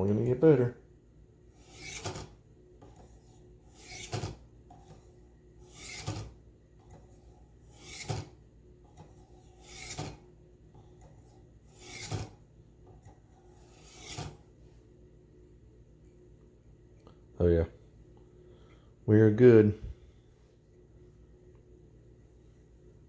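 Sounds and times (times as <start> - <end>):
knife scraping on honing rods: 1.5 - 10.3, 10.9 - 12.4, 13.1 - 14.4.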